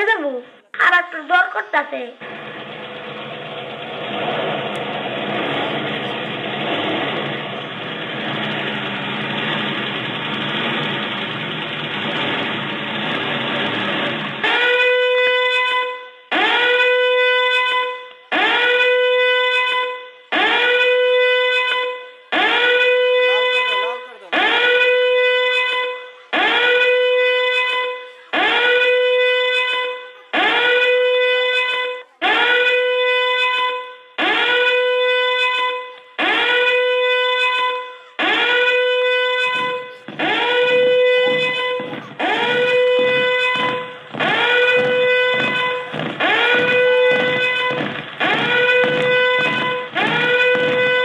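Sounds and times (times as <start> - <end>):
low rumbling: 2.2 - 14.4, 39.4 - 51.0
siren-like alarm tone: 2.2 - 51.0.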